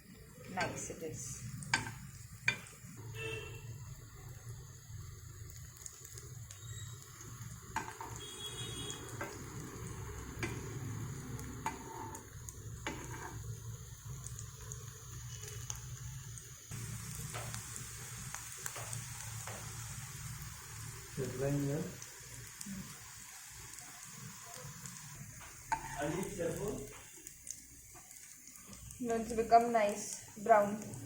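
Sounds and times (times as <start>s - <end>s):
meat sizzling in oil: 0.0s - 31.0s
utensil clicking on pan: 1.6s - 2.8s, 7.8s - 8.2s, 10.4s - 10.7s, 11.4s - 12.2s, 12.8s - 13.4s, 25.7s - 26.1s.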